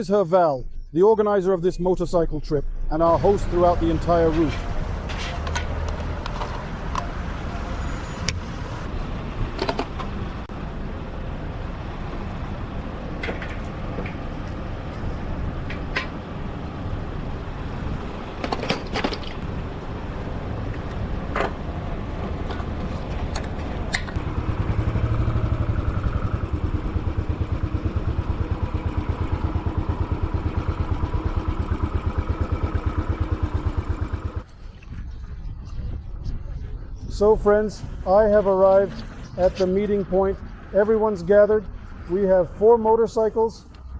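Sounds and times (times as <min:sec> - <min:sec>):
motorcycle engine running: 0:23.6 - 0:34.5.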